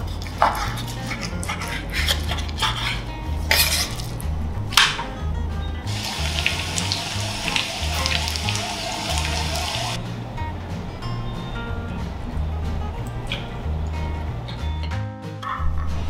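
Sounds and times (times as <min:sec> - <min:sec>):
background music with bass line: 0:00.0 - 0:16.0
knife slicing chicken on board: 0:00.3 - 0:04.0
chicken sizzling in pan: 0:05.9 - 0:10.0.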